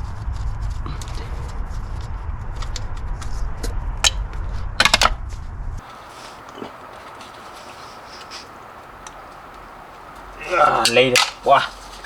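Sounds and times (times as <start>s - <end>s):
low rumble: 0.0s - 5.9s
metal tools clicking and clinking: 10.7s - 12.0s.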